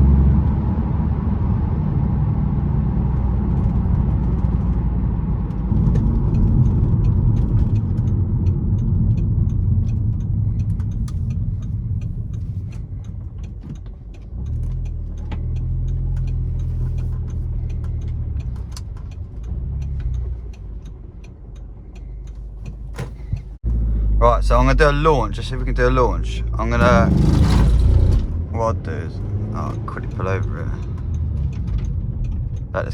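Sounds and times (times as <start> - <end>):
car engine heard from cabin: 0.0 - 32.9
faint ticks: 7.0 - 23.6.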